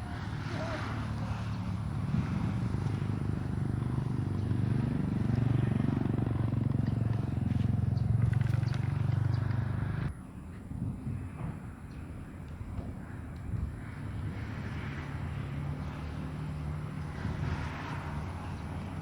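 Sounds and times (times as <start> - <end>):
small engine running: 0.0 - 10.1.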